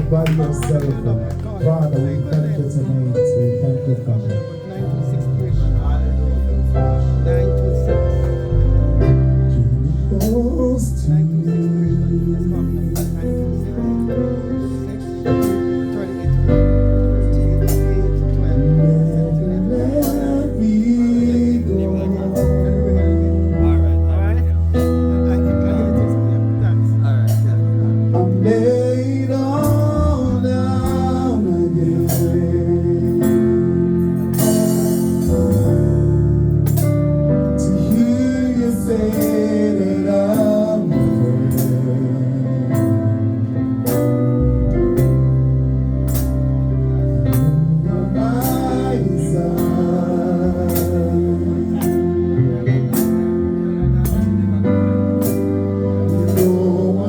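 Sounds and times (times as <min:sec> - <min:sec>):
gospel band playing: 0:00.0 - 0:57.0
hymn sung with accompaniment: 0:09.0 - 0:23.9, 0:28.0 - 0:35.7, 0:37.6 - 0:44.1, 0:47.0 - 0:54.2, 0:55.2 - 0:57.0
person singing: 0:55.7 - 0:57.0.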